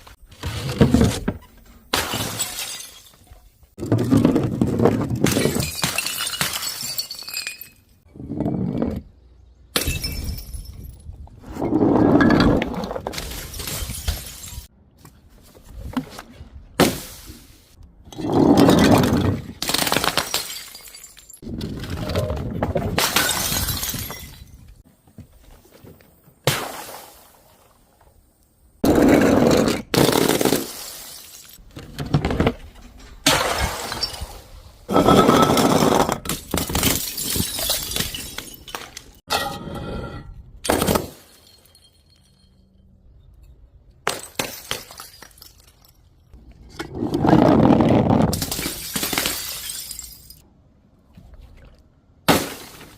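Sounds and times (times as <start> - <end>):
glass bottles shattering: 1.9 - 3.5, 5.2 - 8.0, 9.8 - 11.0, 13.2 - 14.7, 18.5 - 21.4, 23.0 - 24.7, 30.0 - 31.6, 33.3 - 39.6, 40.7 - 42.9, 44.1 - 46.4, 48.3 - 50.4.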